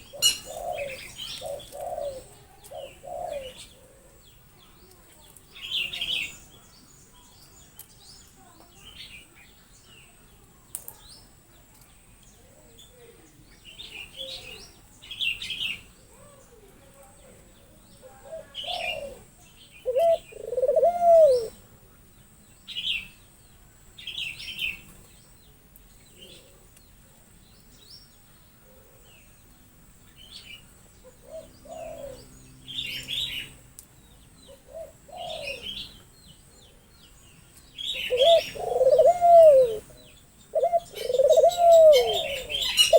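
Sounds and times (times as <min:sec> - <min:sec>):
birds cooing: 0:00.0 - 0:04.4, 0:12.8 - 0:16.7, 0:17.4 - 0:21.6, 0:30.2 - 0:36.9, 0:37.8 - 0:42.9
birds chirping: 0:00.0 - 0:42.9.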